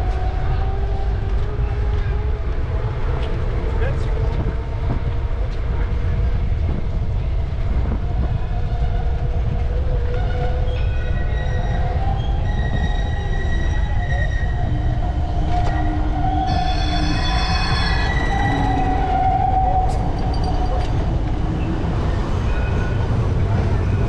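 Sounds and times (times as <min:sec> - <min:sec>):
low rumble: 0:00.0 - 0:24.0
high squealing tones: 0:10.4 - 0:21.1.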